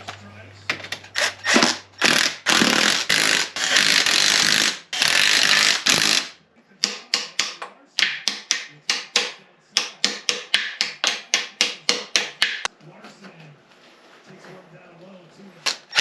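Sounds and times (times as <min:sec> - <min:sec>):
sharp metallic taps: 0:06.8 - 0:12.7.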